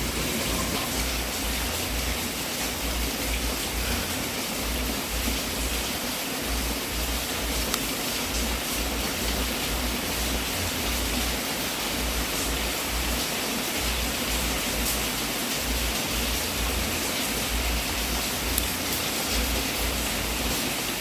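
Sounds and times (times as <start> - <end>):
wood fire hissing and crackling: 0.0 - 21.0.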